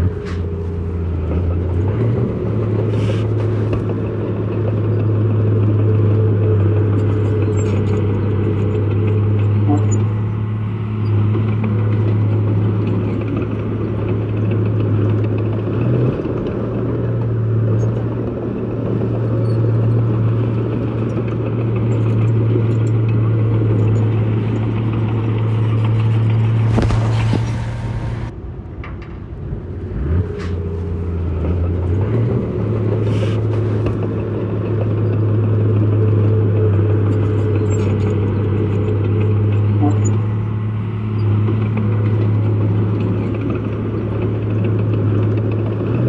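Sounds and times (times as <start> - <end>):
heavy diesel engine running: 0.0 - 28.7, 29.3 - 46.0
brief burst of noise: 26.7 - 28.3.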